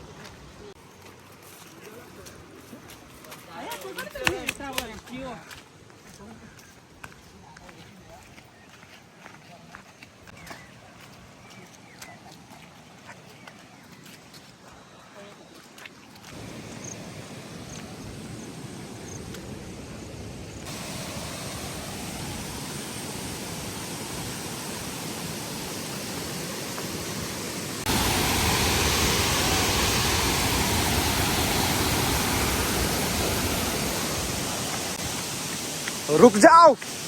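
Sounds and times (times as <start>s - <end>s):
waterfall rushing: 16.3s - 37.0s.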